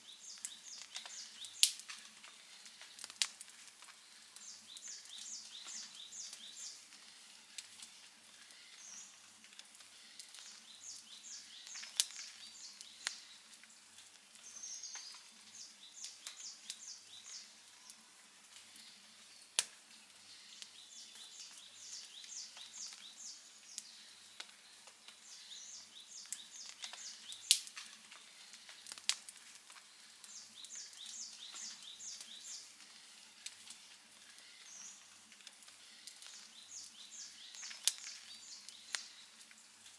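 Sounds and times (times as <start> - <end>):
bird chirping: 0.0 - 1.8, 4.1 - 7.0, 9.9 - 13.8, 14.4 - 18.0, 20.2 - 29.0, 30.2 - 32.8, 35.8 - 39.4
campfire crackling: 0.0 - 39.9.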